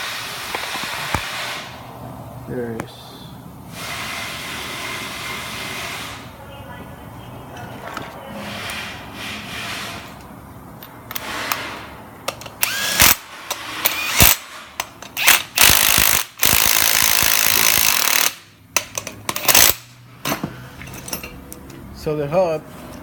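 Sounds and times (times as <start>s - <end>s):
power tool running: 12.6s - 14.6s, 15.2s - 18.4s
metal tools clanking: 18.8s - 21.8s.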